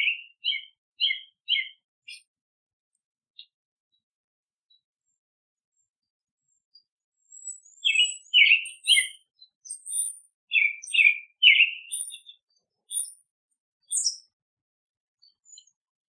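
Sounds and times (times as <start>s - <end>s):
songbirds calling: 0.0s - 2.3s, 7.3s - 14.3s.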